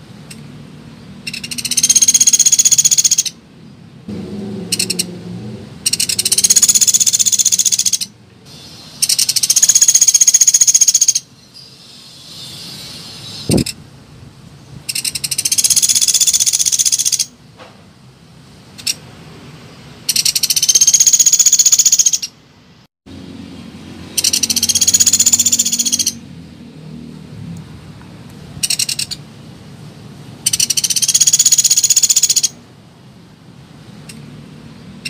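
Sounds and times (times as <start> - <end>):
woodpecker rattling call: 1.2 - 3.4, 4.7 - 5.1, 5.8 - 13.8, 14.9 - 17.4, 20.1 - 22.4, 24.1 - 26.2, 28.6 - 29.2, 30.4 - 32.6.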